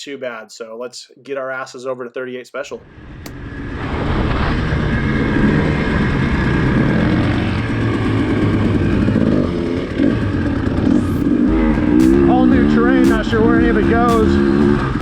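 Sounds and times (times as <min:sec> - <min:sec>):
dirt bike engine revving: 0:04.4 - 0:15.0.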